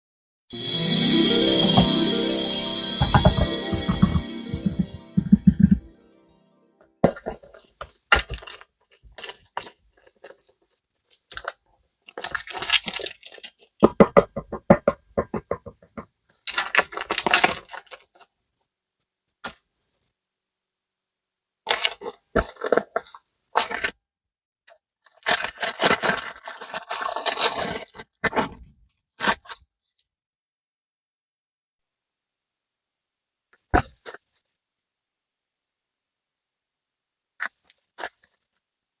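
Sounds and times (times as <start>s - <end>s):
plastic packaging crinkling and tearing: 25.1s - 28.0s.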